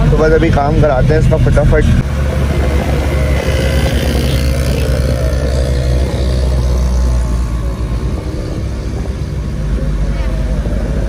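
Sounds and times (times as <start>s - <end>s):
road noise: 0.0s - 11.0s
vehicle engine running: 0.0s - 11.0s.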